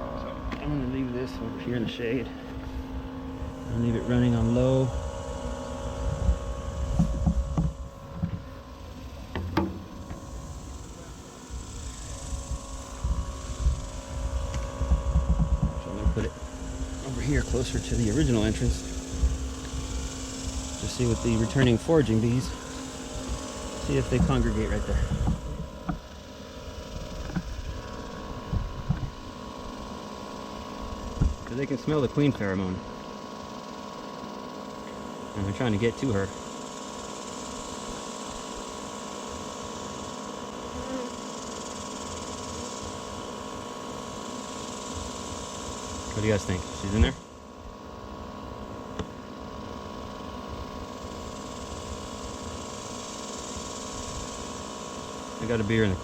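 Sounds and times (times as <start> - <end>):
vacuum motor humming: 0.0 - 56.0
hiss: 3.4 - 31.7, 33.3 - 56.0
brief low thumps: 6.2 - 8.6, 9.2 - 10.6.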